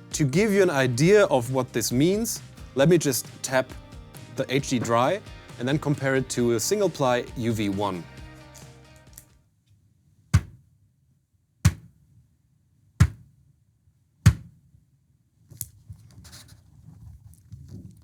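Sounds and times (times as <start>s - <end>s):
drumhead tapped dull thud: 10.4s - 10.6s, 11.7s - 11.9s, 14.3s - 14.5s
rustles and light knocks: 15.4s - 18.0s.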